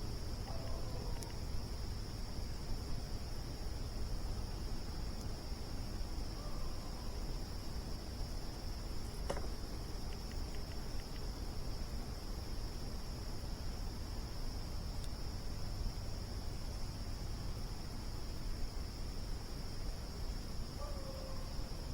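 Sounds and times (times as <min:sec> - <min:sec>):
crickets trilling: 0:00.0 - 0:21.9
faint ticks: 0:00.5 - 0:01.4, 0:08.5 - 0:11.4, 0:14.9 - 0:15.2.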